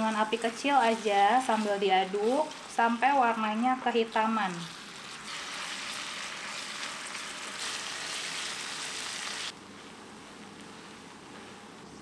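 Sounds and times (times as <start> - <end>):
spice paste sizzling in oil: 0.0 - 11.6.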